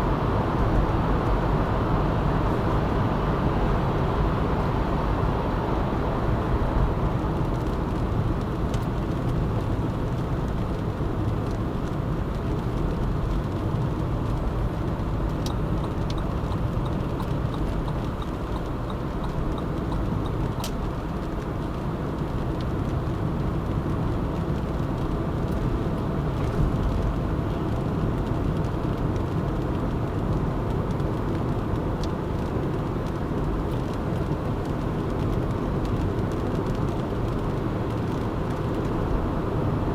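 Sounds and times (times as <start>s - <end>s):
car tyre and engine rumble: 0.0s - 39.9s
faint regular ticking: 15.3s - 21.0s.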